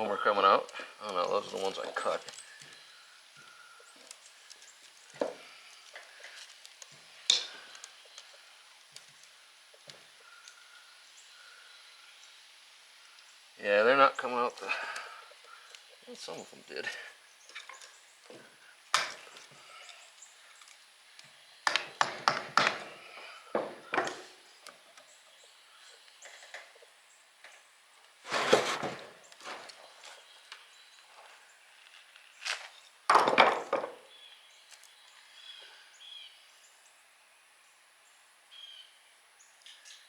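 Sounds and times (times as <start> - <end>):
scraping bursts: 28.2 - 29.8.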